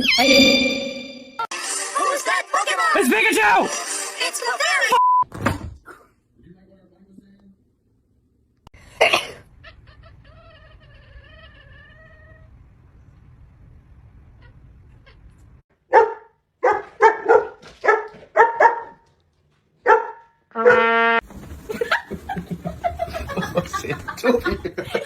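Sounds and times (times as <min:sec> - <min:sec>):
pet animal calling: 0:09.5 - 0:12.5.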